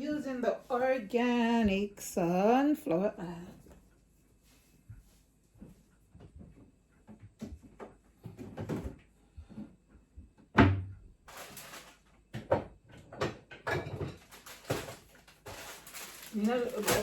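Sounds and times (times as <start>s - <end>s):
items knocking and clattering: 6.2s - 9.1s, 10.4s - 17.0s.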